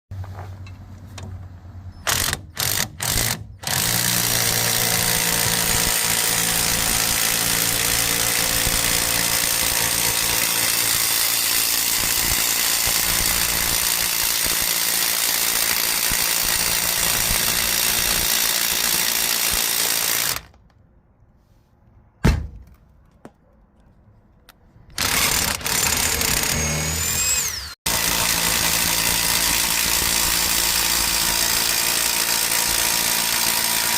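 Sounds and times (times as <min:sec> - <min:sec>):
power drill running: 0:02.1 - 0:20.6, 0:25.0 - 0:33.9
sharp knock: 0:22.2 - 0:22.7.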